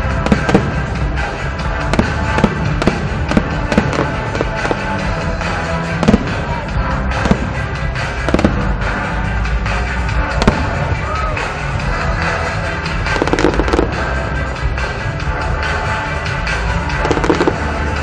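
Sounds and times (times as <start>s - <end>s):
fireworks bursting with bangs: 0.0s - 11.7s, 12.4s - 15.9s, 16.5s - 18.0s
loud music with held tones: 0.0s - 18.0s
fireworks crackle: 0.1s - 11.4s, 12.9s - 14.2s, 16.9s - 18.0s.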